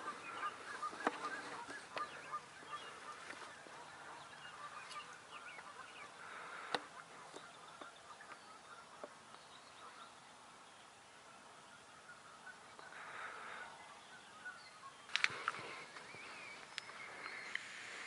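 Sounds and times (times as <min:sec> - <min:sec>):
turkey clucks and yelps: 0:00.0 - 0:09.2.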